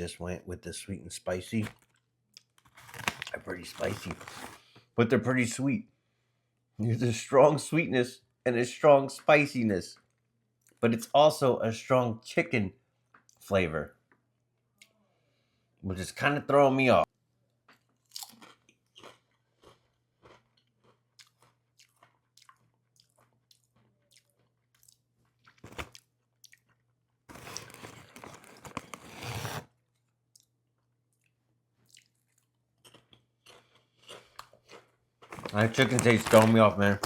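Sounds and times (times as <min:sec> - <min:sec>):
potato chips being crunched: 0:02.6 - 0:04.6, 0:35.2 - 0:37.0.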